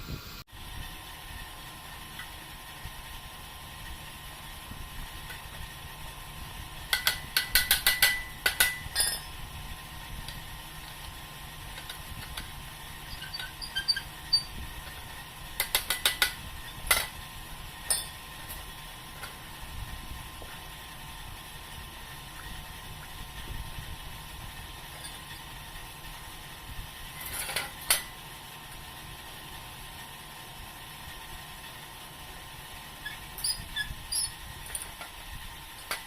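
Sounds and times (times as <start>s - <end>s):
steady low hum: 0.0s - 36.0s
quick metal-on-metal taps: 6.9s - 9.3s.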